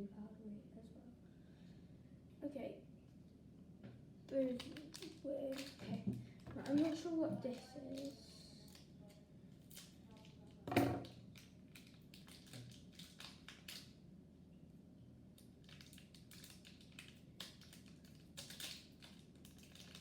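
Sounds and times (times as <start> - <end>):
plastic packaging crinkling: 4.4 - 6.0, 6.6 - 8.8, 11.3 - 13.9, 15.6 - 20.0.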